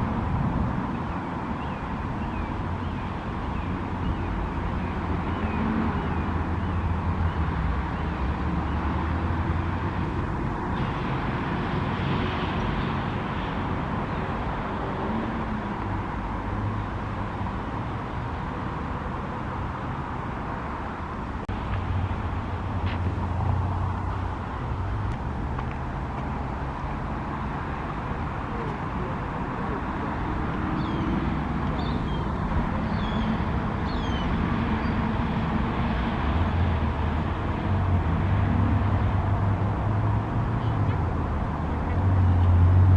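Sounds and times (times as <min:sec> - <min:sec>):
road traffic rumble: 0:00.0 - 0:42.9.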